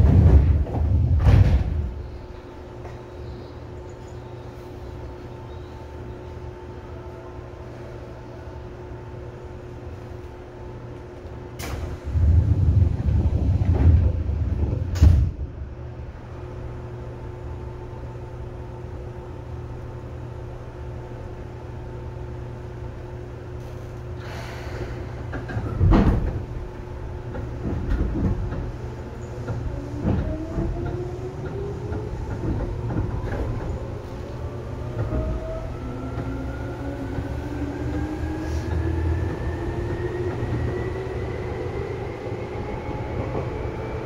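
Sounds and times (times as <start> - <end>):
heavy clunk: 0.0 - 2.0
steady train hum: 0.0 - 44.0
train rumbling: 0.0 - 44.0
air hiss: 24.2 - 25.3.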